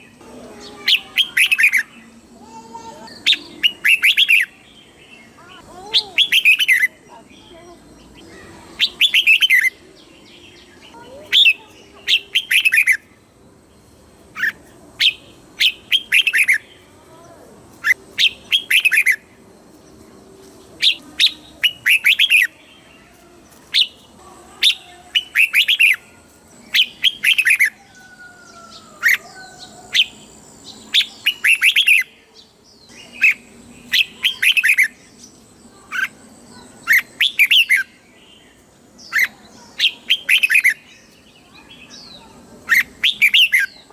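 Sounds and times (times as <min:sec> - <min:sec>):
bird whistling song: 0:03.1 - 0:04.6, 0:06.0 - 0:06.9, 0:08.1 - 0:09.8, 0:11.3 - 0:13.1, 0:14.4 - 0:16.7, 0:17.8 - 0:19.3, 0:20.8 - 0:22.6, 0:24.6 - 0:26.1, 0:26.7 - 0:32.1, 0:32.8 - 0:35.0, 0:36.8 - 0:37.9, 0:39.0 - 0:41.2, 0:42.0 - 0:43.8.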